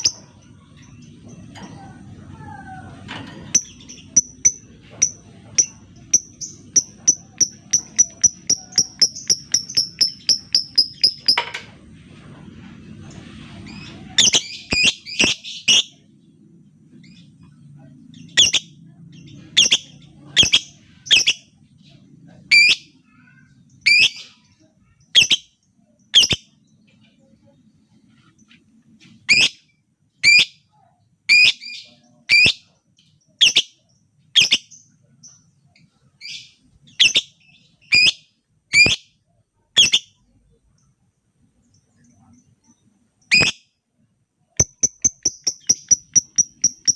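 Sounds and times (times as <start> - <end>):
lovebird shrill calls: 43.3 - 43.6.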